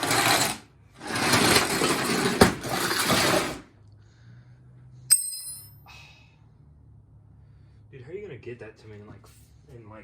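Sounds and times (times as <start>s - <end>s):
metallic clattering and scraping: 0.0s - 3.6s.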